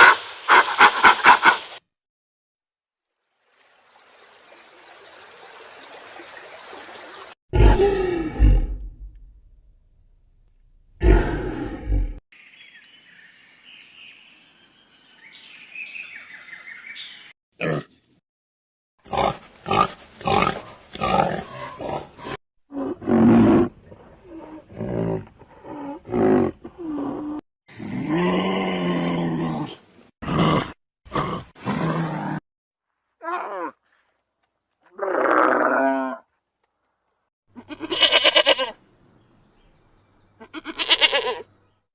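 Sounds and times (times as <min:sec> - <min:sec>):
animal grunts and roars: 0:07.5 - 0:09.4, 0:11.0 - 0:12.2, 0:17.6 - 0:18.0, 0:19.0 - 0:32.4, 0:33.2 - 0:33.9, 0:34.9 - 0:36.3
small high animal calls: 0:40.4 - 0:41.4.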